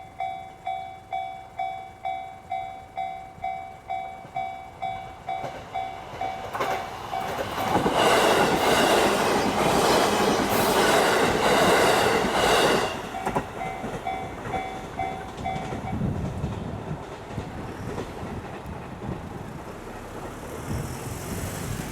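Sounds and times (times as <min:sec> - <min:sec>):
crossing electronic bell ringing: 0:00.0 - 0:09.1, 0:10.5 - 0:16.1
train wheel clatter: 0:00.2 - 0:21.9.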